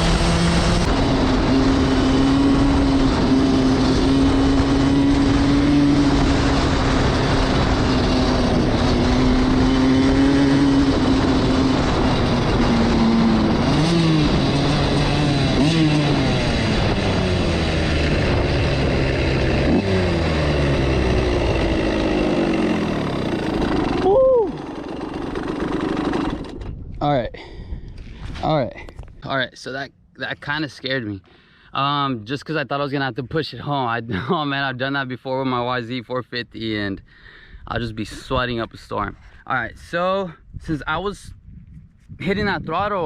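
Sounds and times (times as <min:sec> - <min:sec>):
dirt bike engine revving: 0:00.0 - 0:26.8.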